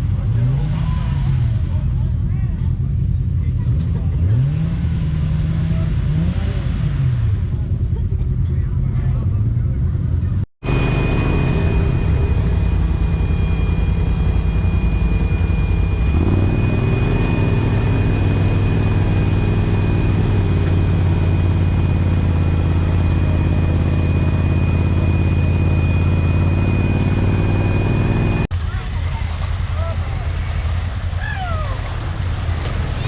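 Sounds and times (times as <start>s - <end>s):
utility vehicle engine running: 0.0s - 33.0s
steady high whine: 10.1s - 28.5s.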